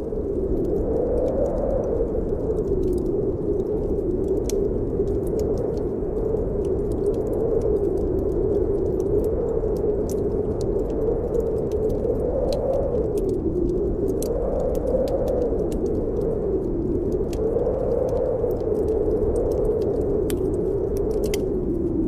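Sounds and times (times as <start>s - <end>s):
wind howling: 0.0s - 22.0s
wood fire crackling and popping: 0.0s - 22.0s.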